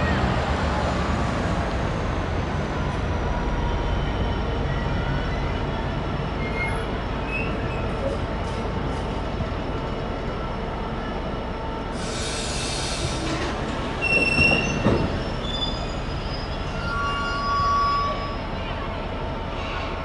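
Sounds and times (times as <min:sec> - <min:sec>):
train wheels rumbling on rail: 0:00.0 - 0:20.0
wheel flange squeals: 0:06.3 - 0:08.2, 0:12.5 - 0:18.7.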